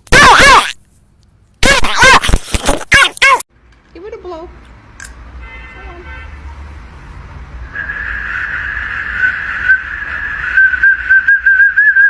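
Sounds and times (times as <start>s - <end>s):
whistle blowing: 7.7s - 12.0s.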